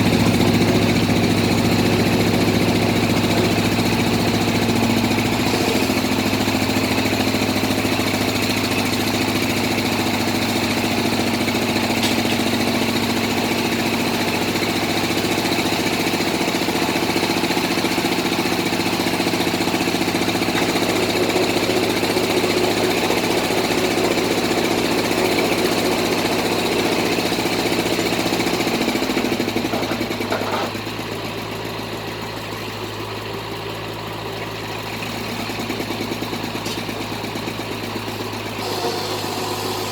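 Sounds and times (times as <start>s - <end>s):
drilling rig engine running: 0.0s - 39.9s.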